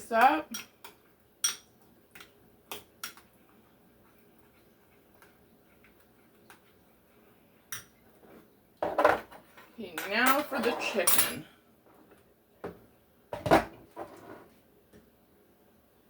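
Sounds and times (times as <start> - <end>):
utensil clinking against a bowl: 0.2 - 3.3.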